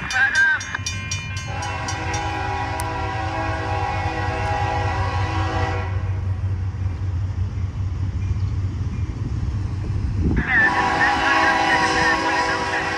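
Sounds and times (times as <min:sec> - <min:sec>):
train rumble: 0:00.0 - 0:12.9
locomotive air horn chord: 0:01.5 - 0:06.2, 0:10.6 - 0:12.9.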